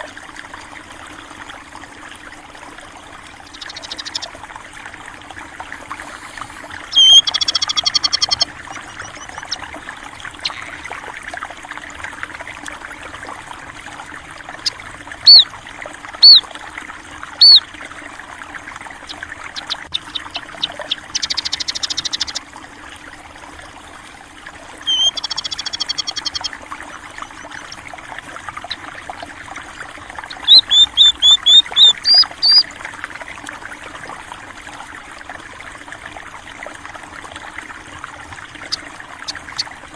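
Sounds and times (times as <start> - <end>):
stream trickling: 0.0 - 39.9
songbirds calling: 3.4 - 4.4, 6.2 - 11.2, 14.5 - 15.5, 16.2 - 16.5, 17.3 - 17.7, 19.0 - 22.5, 24.8 - 29.0, 29.6 - 32.7, 38.5 - 39.8.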